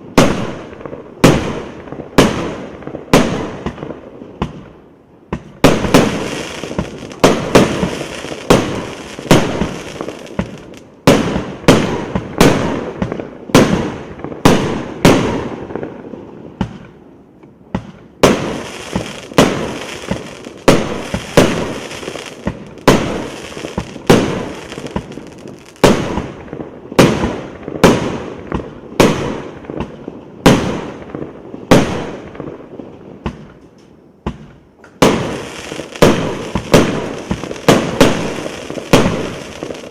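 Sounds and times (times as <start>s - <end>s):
fireworks battery bangs: 17.8s - 26.4s, 34.3s - 39.9s.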